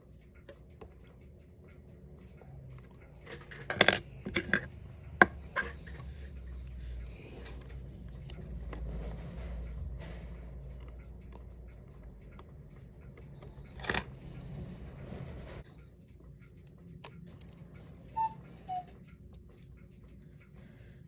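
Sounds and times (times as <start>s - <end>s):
watch parts clicking and clinking: 0.3s - 8.9s, 10.6s - 14.5s.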